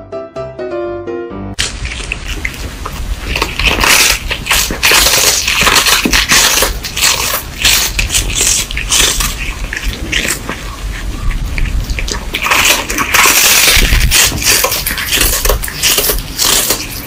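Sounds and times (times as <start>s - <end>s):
cat crunching dry chew: 1.6s - 17.0s.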